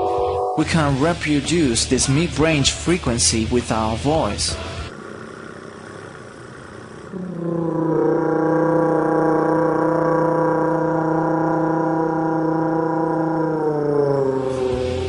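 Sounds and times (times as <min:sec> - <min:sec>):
person imitating engine drone: 0:07.0 - 0:15.0.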